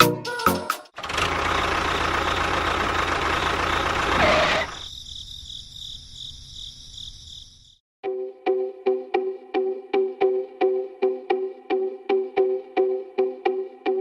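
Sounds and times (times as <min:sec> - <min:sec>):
loud mechanical running noise: 0:01.0 - 0:04.8.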